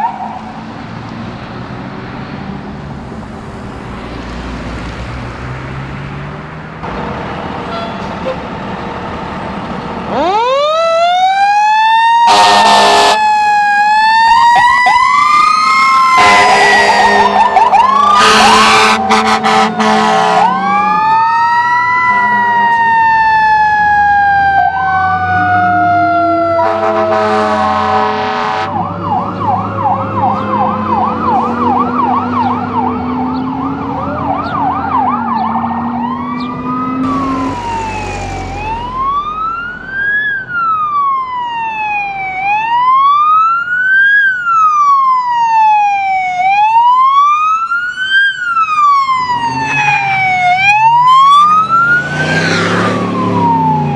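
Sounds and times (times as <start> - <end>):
air horn blast: 7.4 - 8.6, 12.3 - 13.2, 16.1 - 21.0, 26.6 - 28.8, 37.0 - 39.2
siren wailing and yelping: 10.1 - 26.5, 28.9 - 53.9.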